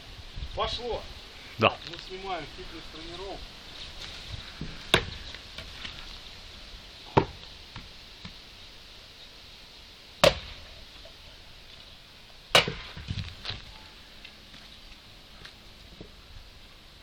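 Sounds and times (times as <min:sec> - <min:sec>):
axe chopping wood: 0:04.9 - 0:05.2, 0:07.1 - 0:07.9, 0:10.2 - 0:10.7, 0:12.5 - 0:13.6.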